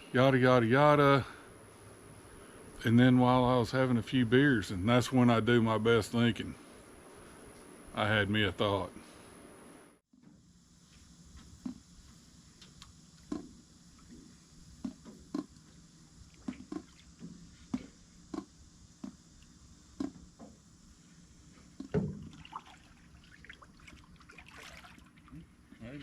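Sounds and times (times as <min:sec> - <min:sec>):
water slapping against boat hull: 0:21.8 - 0:25.4.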